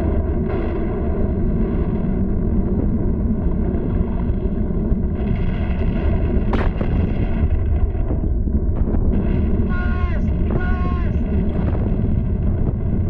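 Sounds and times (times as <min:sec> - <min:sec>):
volcano rumbling blasts: 0:00.0 - 0:13.0
sharp crack: 0:05.2 - 0:08.2.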